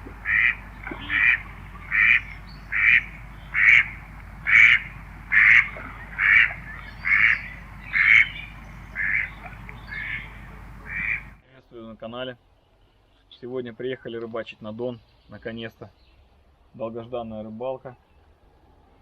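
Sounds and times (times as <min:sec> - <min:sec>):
bird quacking calls: 0:00.0 - 0:11.4.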